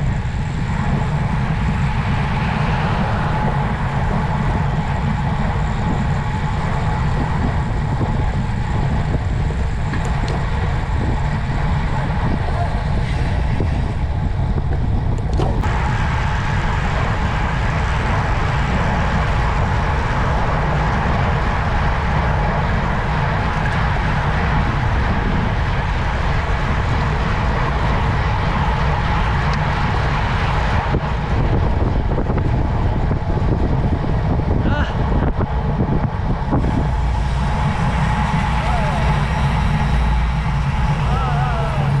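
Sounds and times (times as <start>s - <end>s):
vehicle engine drone: 0.0s - 42.0s
wind rushing over microphone: 0.0s - 42.0s.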